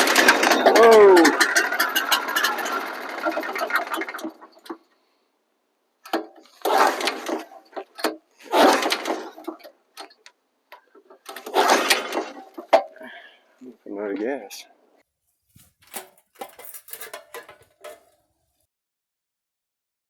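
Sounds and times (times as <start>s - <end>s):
small gas engine dying out: 0.0s - 4.6s.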